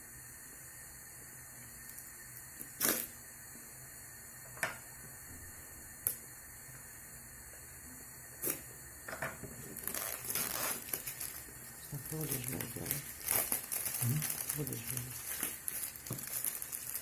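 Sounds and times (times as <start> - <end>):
faint hiss: 0.0 - 17.0
packaging being handled: 9.7 - 17.0.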